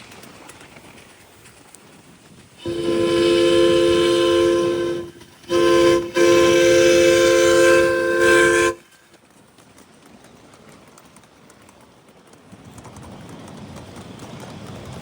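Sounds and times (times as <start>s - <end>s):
miniature train whistle blasts: 2.6s - 8.8s.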